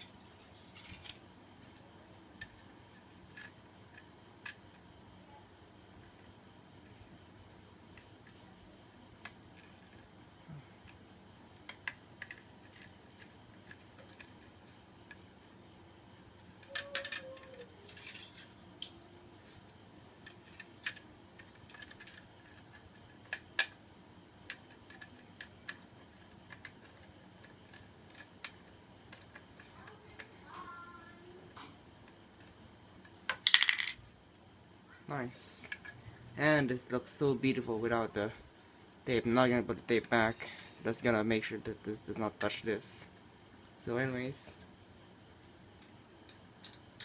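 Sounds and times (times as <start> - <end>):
rustling and scraping: 0.0 - 1.8
light clicks and taps of small parts: 24.5 - 30.3.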